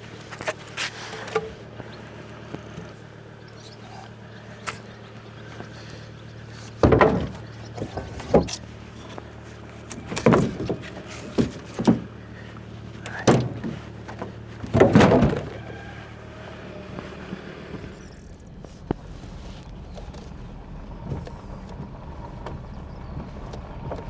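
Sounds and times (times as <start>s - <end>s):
low engine-like hum: 0.0s - 24.0s
heavy knocks: 6.8s - 8.5s.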